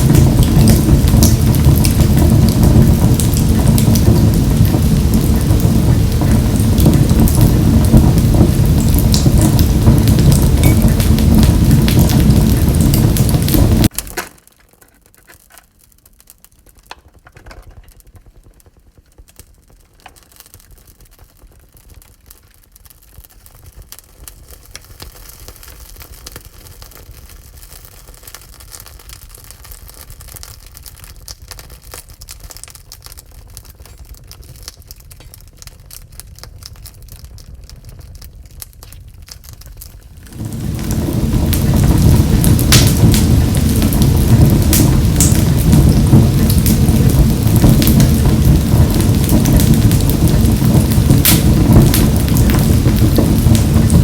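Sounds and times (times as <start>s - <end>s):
wood fire crackling: 0.0s - 54.0s
loud rushing noise: 40.3s - 54.0s.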